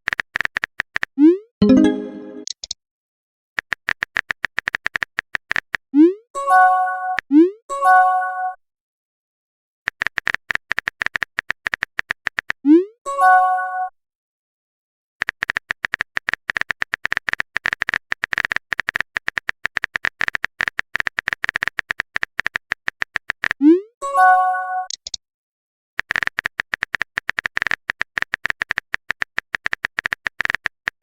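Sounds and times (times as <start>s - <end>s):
rapid keyboard typing: 0.1s - 1.1s, 3.6s - 5.8s, 9.9s - 12.6s, 15.2s - 23.6s, 26.0s - 31.0s
message notification chime: 1.6s - 2.5s.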